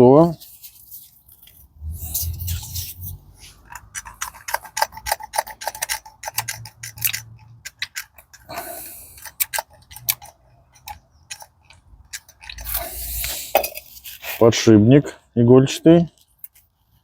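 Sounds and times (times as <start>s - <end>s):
short scraping rub: 0.2s - 4.8s
metal parts clicking and clinking: 3.6s - 12.9s.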